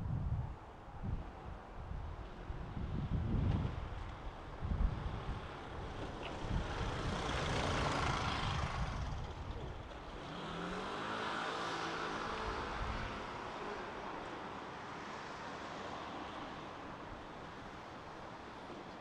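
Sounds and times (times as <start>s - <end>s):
wind buffeting microphone: 0.0s - 10.2s
vehicle passing: 5.1s - 15.3s.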